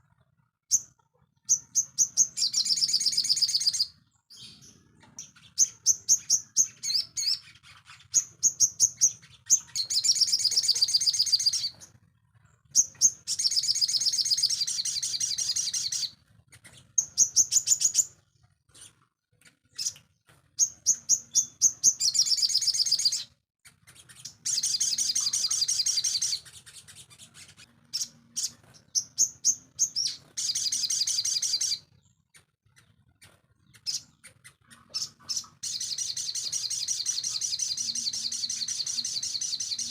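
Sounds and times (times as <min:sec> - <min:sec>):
high sharp bird chirps: 0:00.7 - 0:11.9, 0:12.7 - 0:18.2, 0:20.6 - 0:39.9
buzzy bird trills: 0:20.6 - 0:32.9, 0:33.6 - 0:39.9.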